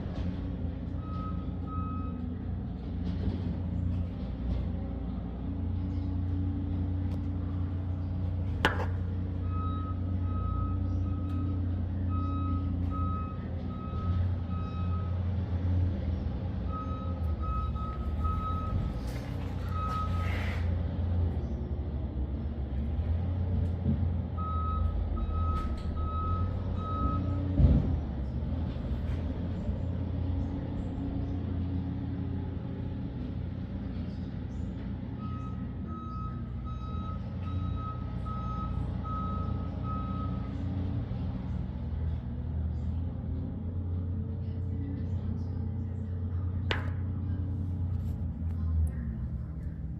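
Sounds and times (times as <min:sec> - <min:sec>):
engine rumbling: 0:00.0 - 0:49.9
reversing alarm beeps: 0:01.0 - 0:02.3, 0:09.4 - 0:15.2, 0:16.7 - 0:20.6, 0:24.4 - 0:27.4, 0:35.2 - 0:40.5.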